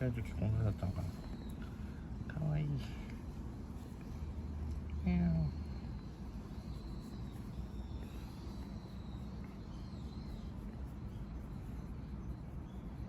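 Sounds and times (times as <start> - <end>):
faint high chirping: 3.9 - 13.0.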